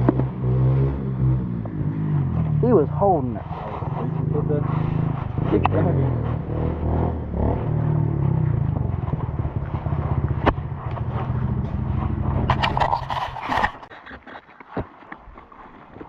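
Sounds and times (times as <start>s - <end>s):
dirt bike engine running: 0.0s - 13.9s
loud scraping clatter: 3.4s - 14.5s.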